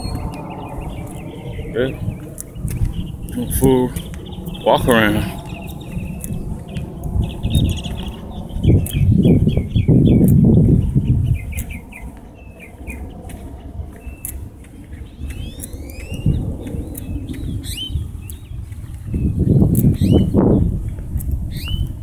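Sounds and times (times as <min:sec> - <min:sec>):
rising whistled bird calls: 0:00.0 - 0:06.4, 0:15.0 - 0:18.6, 0:19.9 - 0:20.4, 0:21.5 - 0:21.9
birds chirping: 0:00.0 - 0:22.0
low rumble on microphone: 0:00.0 - 0:22.0.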